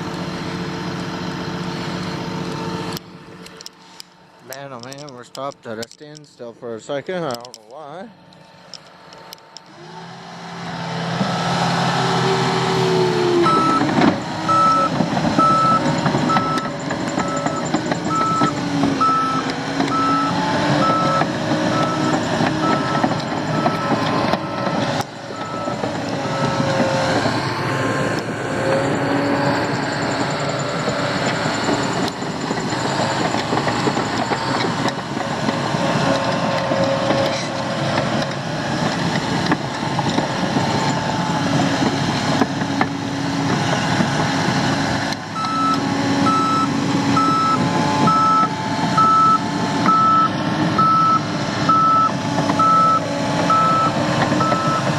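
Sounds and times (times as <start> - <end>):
heavy vehicle engine running: 0.0 - 54.9
reversing alarm beeping: 13.2 - 27.0, 28.6 - 34.6, 45.4 - 54.9.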